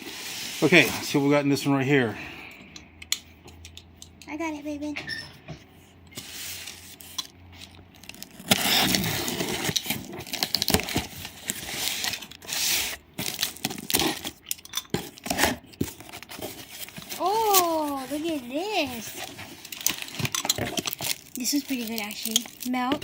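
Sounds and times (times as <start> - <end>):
plastic bag rustling: 6.2 - 23.0.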